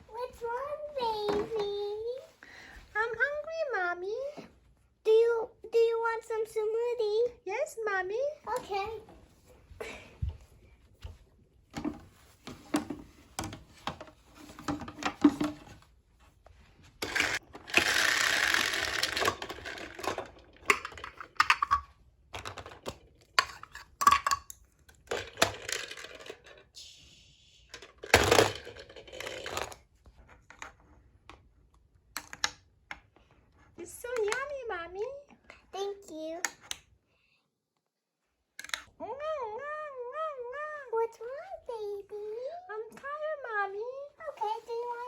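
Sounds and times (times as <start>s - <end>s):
plastic toys rattling and scraping: 11.8s - 15.9s, 16.9s - 26.8s, 27.7s - 31.5s
plastic toy pieces clattering: 17.0s - 26.7s, 27.8s - 29.8s.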